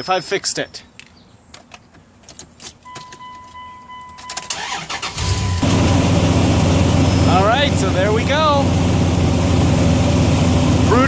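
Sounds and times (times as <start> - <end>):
electronic warning beep: 2.8 - 4.6, 5.2 - 5.8
car engine running: 4.6 - 11.0.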